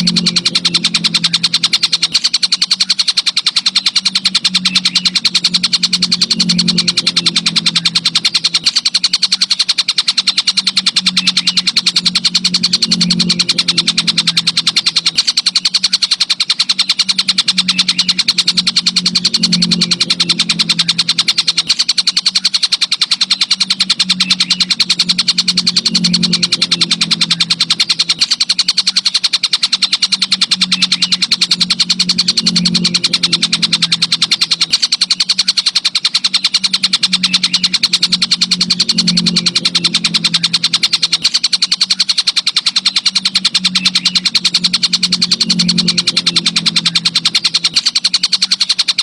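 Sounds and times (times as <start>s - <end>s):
insect trilling: 0.0s - 49.0s
low hum: 0.0s - 49.0s.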